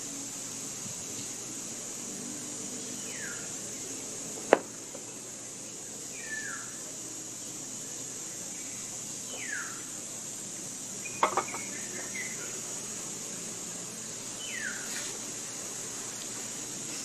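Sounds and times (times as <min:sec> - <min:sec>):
bird whistled call: 0:06.1 - 0:06.8, 0:09.3 - 0:09.8.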